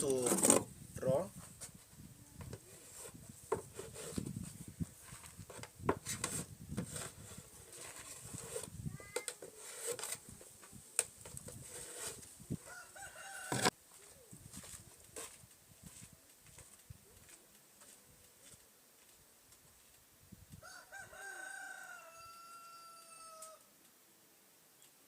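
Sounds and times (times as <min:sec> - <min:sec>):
light knocks and rubbing: 0:02.4 - 0:12.2
rooster crowing: 0:12.6 - 0:13.8, 0:20.6 - 0:23.7.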